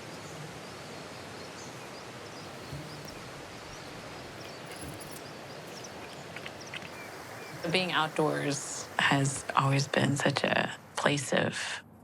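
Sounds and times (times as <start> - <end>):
background noise wash: 0.0 - 12.0
small animals chirping: 4.2 - 7.7.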